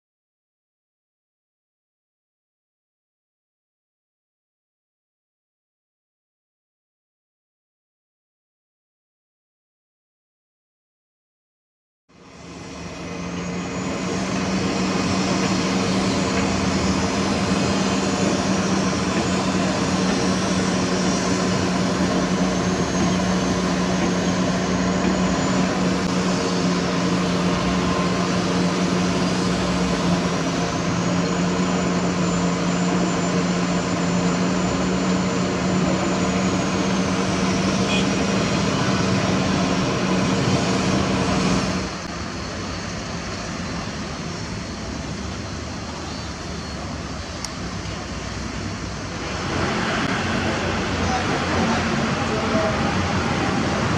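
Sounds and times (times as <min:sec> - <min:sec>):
diesel engine humming: 0:12.1 - 0:53.9
faint high whine: 0:12.1 - 0:53.9.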